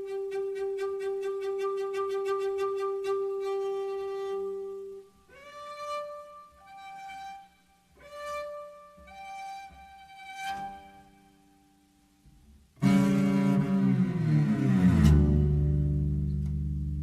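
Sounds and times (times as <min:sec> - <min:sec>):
bowed string solo melody: 0:12.8 - 0:17.0.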